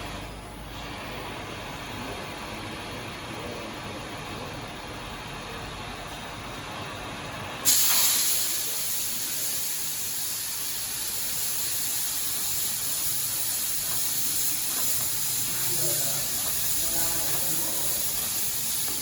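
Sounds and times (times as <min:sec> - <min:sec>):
gas cutting torch hissing: 0:07.6 - 0:19.0.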